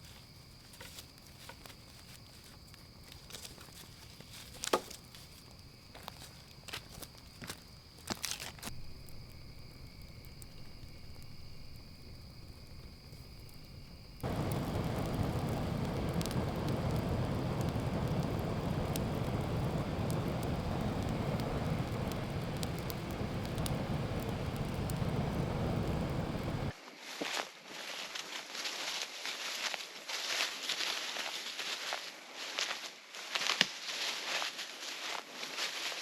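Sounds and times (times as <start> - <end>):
high insect drone: 0.0 - 26.7
fire crackling and popping: 0.1 - 26.7
campfire flames rumbling: 0.2 - 26.7.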